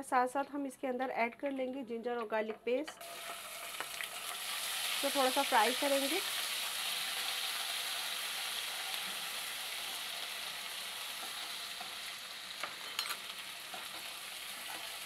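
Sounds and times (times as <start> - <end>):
paste sizzling in hot oil: 3.0 - 15.0
spatula stirring in pan: 6.4 - 15.0.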